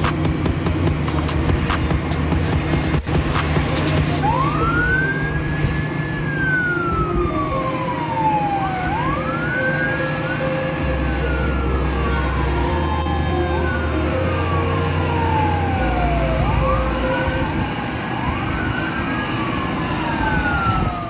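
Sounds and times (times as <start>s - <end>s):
music with a beat: 0.0s - 4.2s
steady low rumble: 0.0s - 9.2s, 10.8s - 18.0s
wailing siren: 2.0s - 21.0s.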